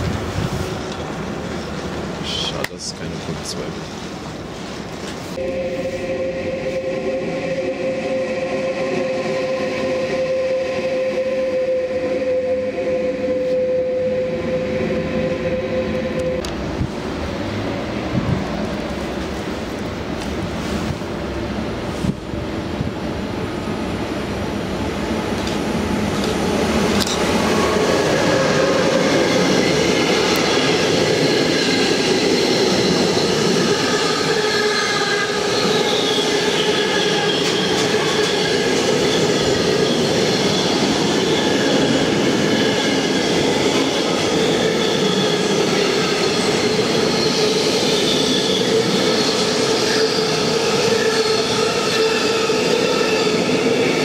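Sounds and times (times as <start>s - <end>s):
freight train passing: 0.0s - 54.0s
wheels squealing on rails: 25.4s - 54.0s.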